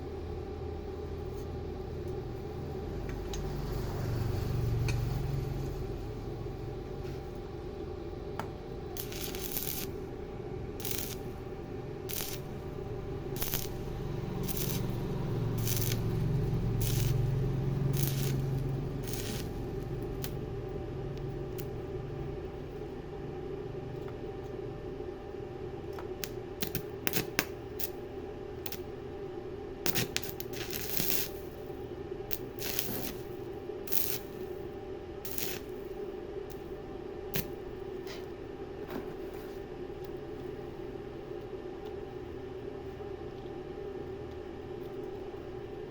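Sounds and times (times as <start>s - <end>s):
steady machine hum: 0.0s - 45.9s.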